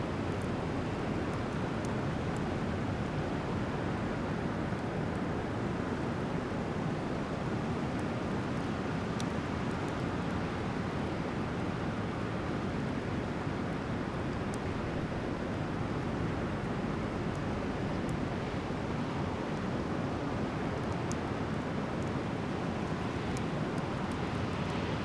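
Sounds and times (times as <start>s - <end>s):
faint sharp fire crackles: 0.0s - 25.0s
bonfire burning: 0.1s - 25.0s.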